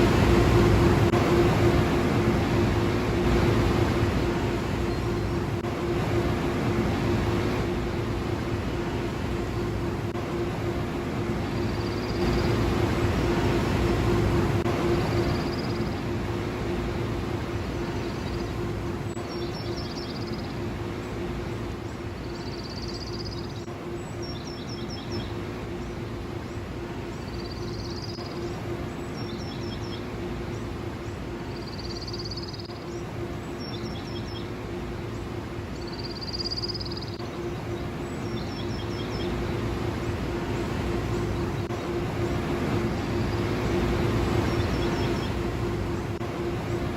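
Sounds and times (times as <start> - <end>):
car wash machinery droning: 0.0 - 19.3.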